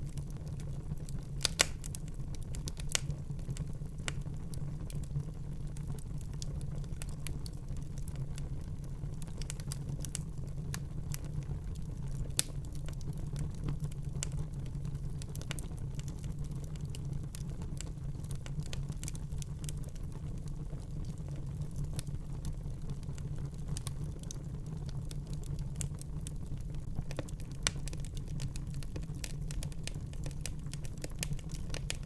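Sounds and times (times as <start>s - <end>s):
fire flames rumbling: 0.0s - 32.0s
wood fire crackling and popping: 0.0s - 32.0s.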